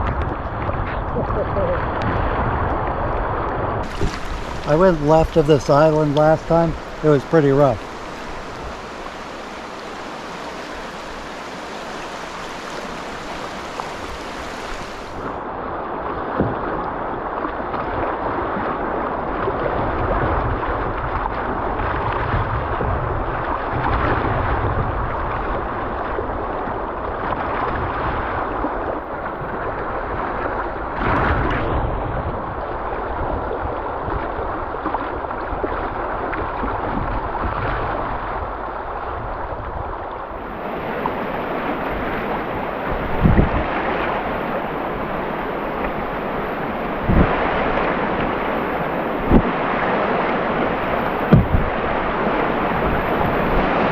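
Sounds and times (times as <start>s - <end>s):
wind rumble on microphone: 0.0s - 53.9s
river water rushing: 3.3s - 20.6s, 40.1s - 53.9s.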